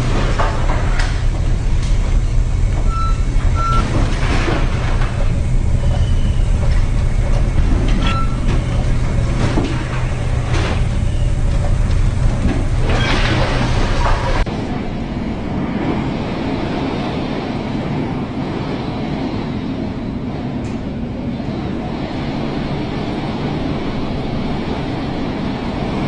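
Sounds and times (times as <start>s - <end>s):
ship engine droning: 0.0s - 26.0s.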